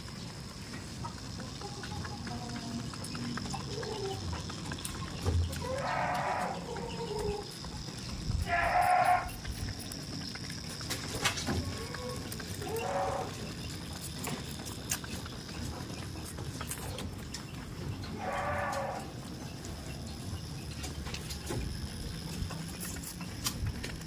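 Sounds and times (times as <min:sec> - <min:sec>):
goats bleating: 0:05.6 - 0:07.4, 0:08.4 - 0:09.4, 0:11.6 - 0:13.4.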